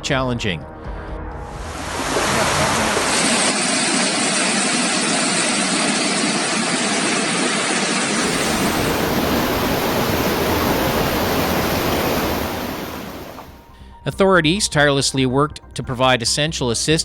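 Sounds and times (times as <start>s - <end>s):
heavy rain: 1.6s - 4.3s, 8.2s - 13.6s
flowing floodwater rushing: 1.7s - 4.3s, 8.2s - 13.6s.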